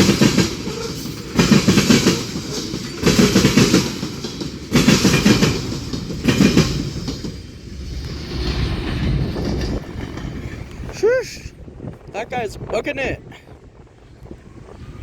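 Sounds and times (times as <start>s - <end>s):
train wheels clacking: 0.0s - 11.1s
train rumble: 0.0s - 15.0s.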